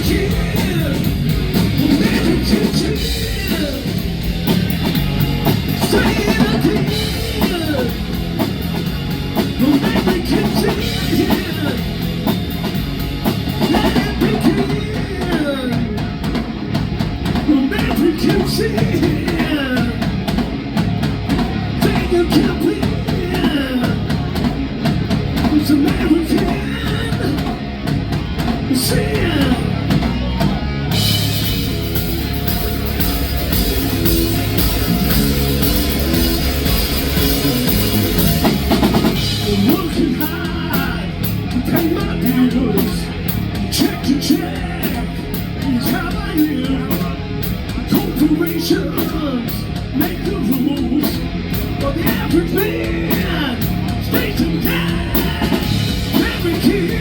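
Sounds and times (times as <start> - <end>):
person singing: 0.0 - 4.0, 5.8 - 8.2, 9.5 - 12.1, 13.6 - 16.3, 17.4 - 20.1, 21.8 - 24.4, 25.4 - 27.6, 28.7 - 31.2, 37.4 - 57.0
drum kit: 0.0 - 57.0
electric guitar bending pitch: 18.2 - 57.0.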